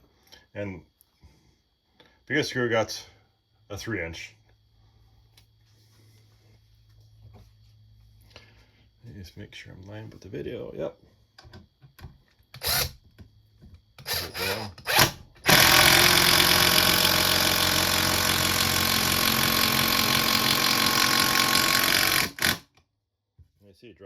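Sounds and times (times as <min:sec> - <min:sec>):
impact driver driving screw into wood: 0:12.6 - 0:13.0, 0:14.0 - 0:22.8.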